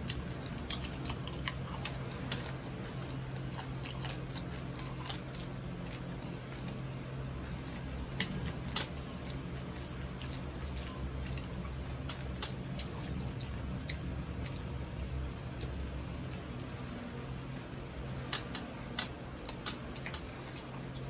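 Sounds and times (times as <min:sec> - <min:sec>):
steady low hum: 0:00.0 - 0:21.0
wet chewing of crispy food: 0:00.0 - 0:21.0
sharp clicks and crackles: 0:18.3 - 0:20.3.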